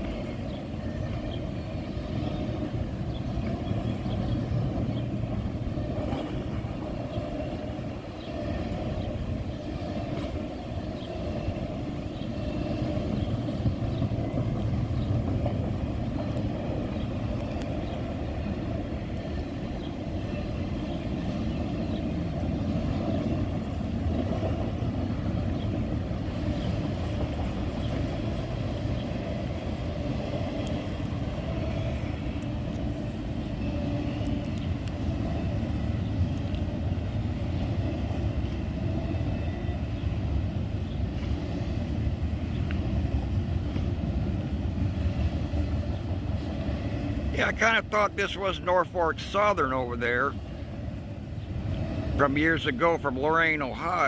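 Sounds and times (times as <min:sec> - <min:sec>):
freight train rumbling on rails: 0:00.0 - 0:54.0.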